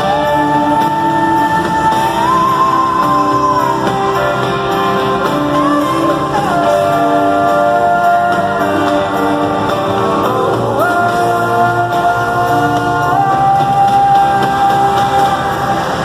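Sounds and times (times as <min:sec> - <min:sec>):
live pop ballad with band: 0:00.0 - 0:16.0
woman singing long notes: 0:00.0 - 0:16.0.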